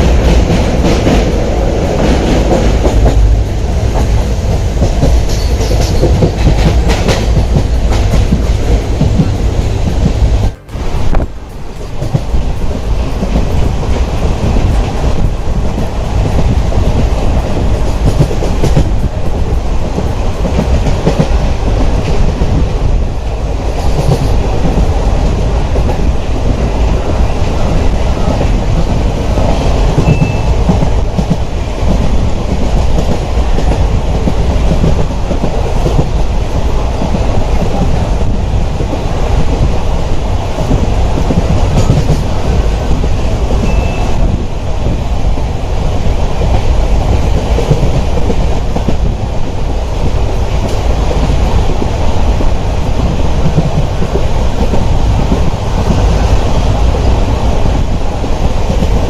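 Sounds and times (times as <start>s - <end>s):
train rumbling on rails: 0.0s - 59.0s.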